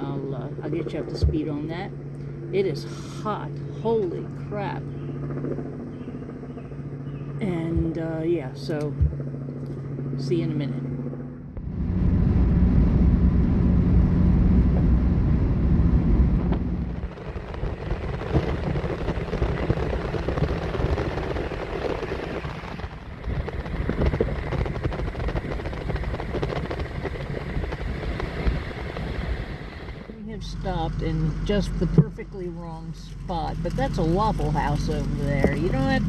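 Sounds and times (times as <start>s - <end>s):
car road and wind noise: 11.6s - 36.0s.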